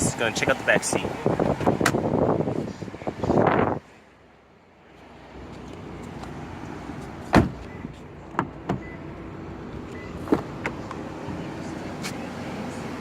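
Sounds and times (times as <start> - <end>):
car door shutting: 1.3 - 2.2, 7.0 - 9.0, 9.9 - 11.0.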